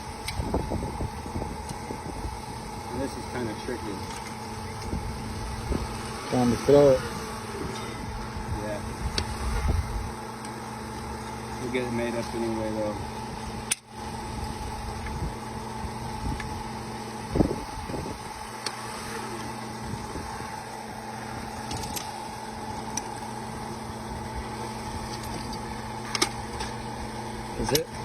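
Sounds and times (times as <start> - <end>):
drilling rig droning: 0.0 - 28.0.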